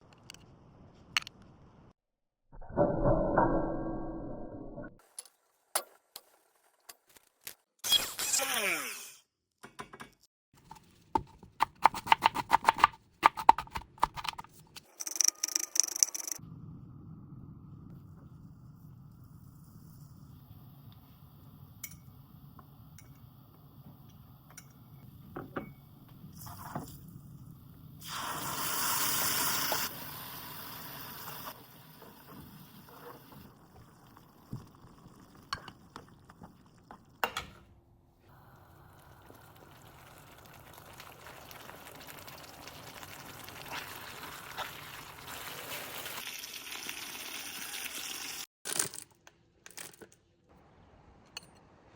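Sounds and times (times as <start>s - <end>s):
food sizzling in a pan: 28.0s - 35.7s, 38.3s - 48.5s.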